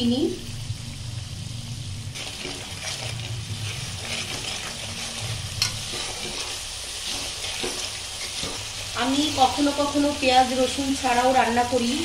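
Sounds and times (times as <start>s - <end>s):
paste sizzling in oil: 0.4s - 12.0s
spatula scraping a pan: 2.2s - 9.5s.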